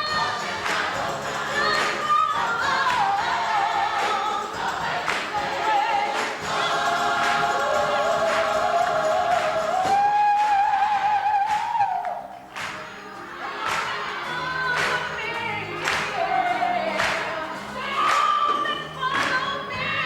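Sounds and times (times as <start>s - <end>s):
choir singing: 0.0s - 20.0s.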